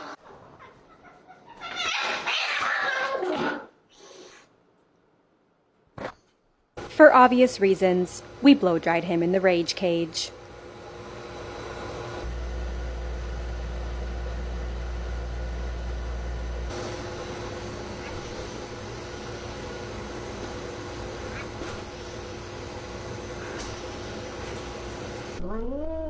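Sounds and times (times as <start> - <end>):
pet blow dryer running: 6.8 - 25.4.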